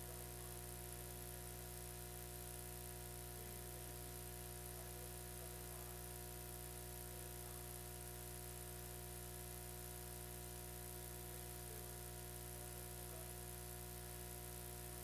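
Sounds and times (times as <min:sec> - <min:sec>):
electrical hum and buzz: 0:00.0 - 0:15.0.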